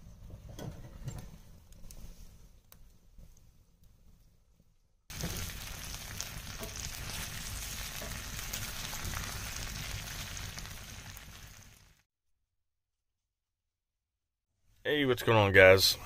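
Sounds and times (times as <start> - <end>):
faint fire crackle: 0.0 - 12.1
wooden spoon stirring: 5.1 - 9.6
potatoes sizzling in oil: 5.1 - 12.0.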